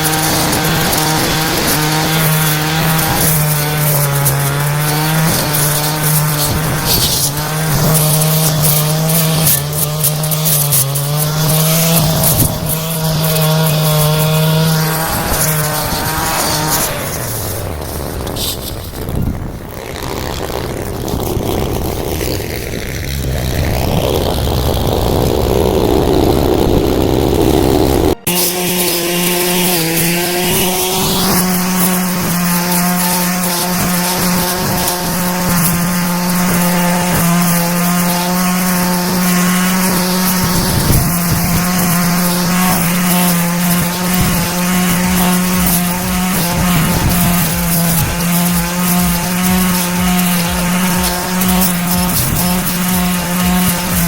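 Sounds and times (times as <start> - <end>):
brush cutter engine running: 0.0 - 54.0.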